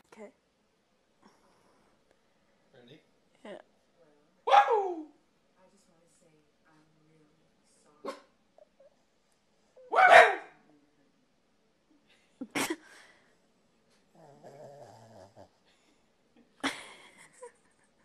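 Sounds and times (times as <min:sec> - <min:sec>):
dog barking: 0:04.5 - 0:05.1, 0:08.0 - 0:08.3, 0:09.8 - 0:10.6.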